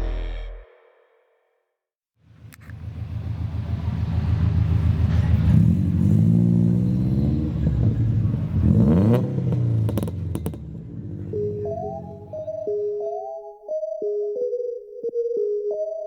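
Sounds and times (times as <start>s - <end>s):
car engine revving: 2.3s - 12.5s.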